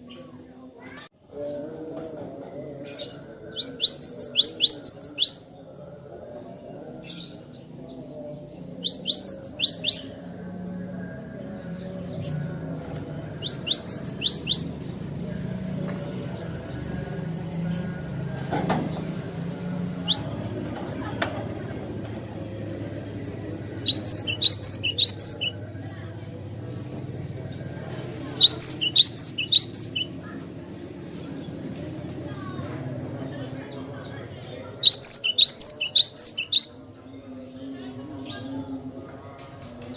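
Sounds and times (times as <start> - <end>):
bird singing high sharp notes: 3.6 - 5.4, 8.8 - 10.1, 13.4 - 14.7, 20.1 - 20.3, 23.9 - 25.6, 28.4 - 30.1, 34.8 - 36.8.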